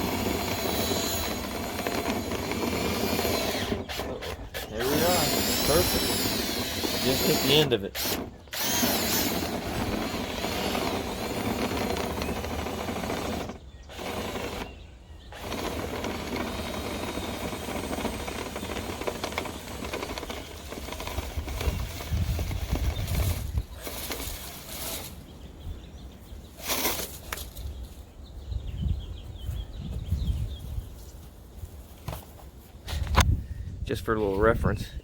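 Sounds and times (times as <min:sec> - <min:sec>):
drill whirring: 0:00.0 - 0:25.2, 0:26.6 - 0:27.1.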